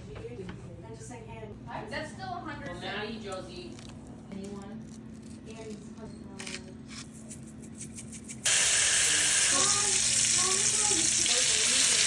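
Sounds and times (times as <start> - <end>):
food sizzling in a pan: 8.5 - 12.0.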